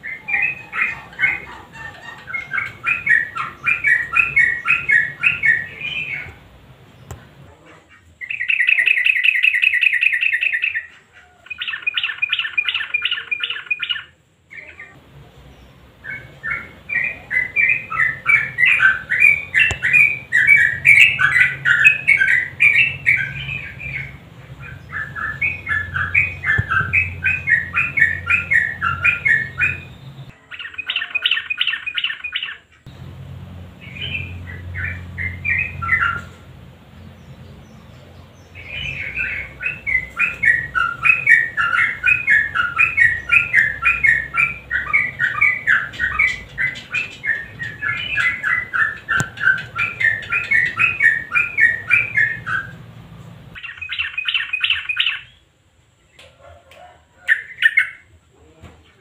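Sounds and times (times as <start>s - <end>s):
bird singing chattering trills: 0.0s - 7.2s, 7.9s - 52.8s, 53.5s - 55.4s
low steady hum: 32.7s - 53.6s.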